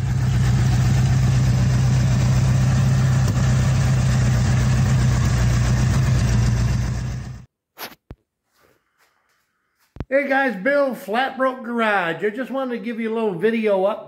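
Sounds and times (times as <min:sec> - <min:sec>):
car engine idling: 0:00.0 - 0:07.5.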